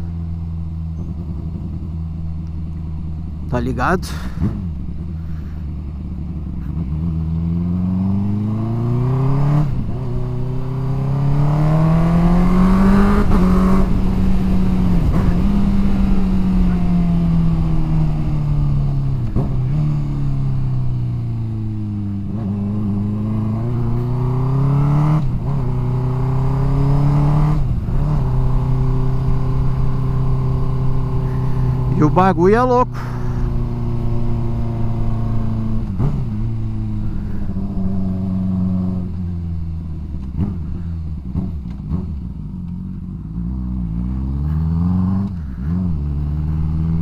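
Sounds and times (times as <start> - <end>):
motorcycle engine through loud exhaust: 0.0 - 47.0.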